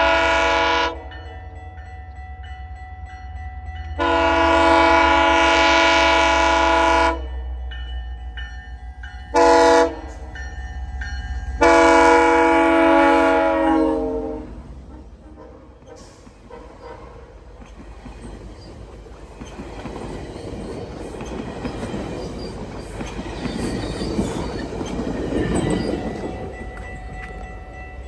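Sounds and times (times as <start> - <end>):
train air horn blasts: 0.0 - 1.1, 4.0 - 7.4, 9.3 - 10.2, 11.6 - 17.3
low rumble of passing train: 0.0 - 28.0.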